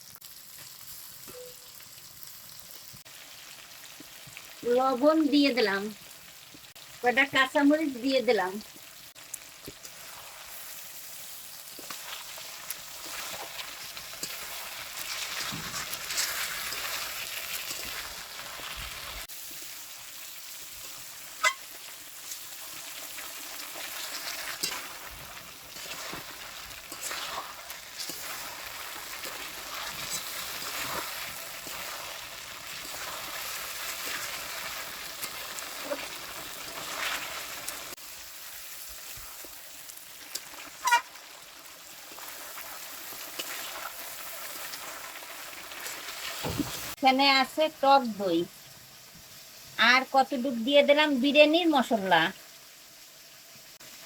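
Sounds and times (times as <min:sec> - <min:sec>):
chicken sizzling in oil: 0:00.0 - 0:54.0
spatula scraping a pot: 0:13.0 - 0:18.2, 0:23.8 - 0:37.4.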